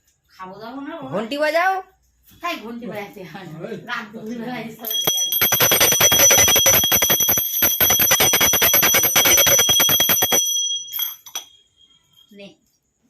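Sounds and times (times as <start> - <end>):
metal bell ringing rapidly: 4.8 - 11.6.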